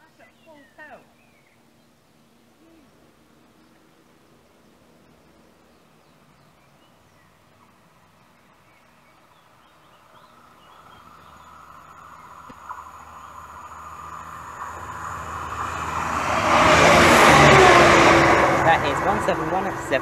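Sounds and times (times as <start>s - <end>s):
train rumble and rail noise: 11.4s - 20.0s.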